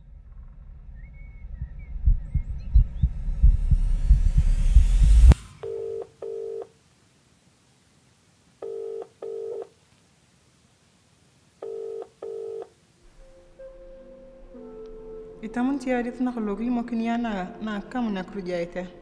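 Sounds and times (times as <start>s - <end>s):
low pulsing with rising hiss: 0.0s - 6.4s
telephone ringback tone: 5.5s - 6.8s, 8.6s - 9.7s, 11.6s - 12.7s.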